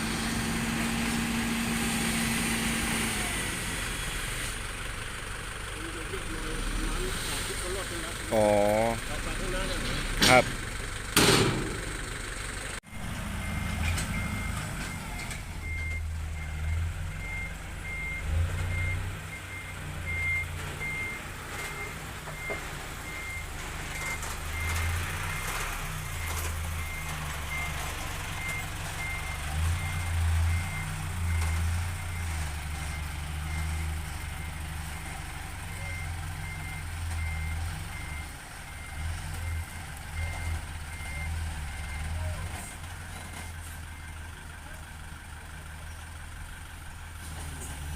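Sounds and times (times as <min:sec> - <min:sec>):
diesel engine rumble: 0:00.0 - 0:47.9
reversing alarm beeping: 0:13.3 - 0:42.4.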